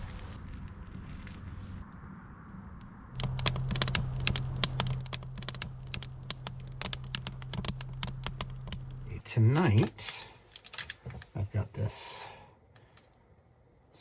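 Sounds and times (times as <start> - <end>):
steady low hum: 0.0 - 14.0
sharp clicks and light taps: 3.2 - 9.0.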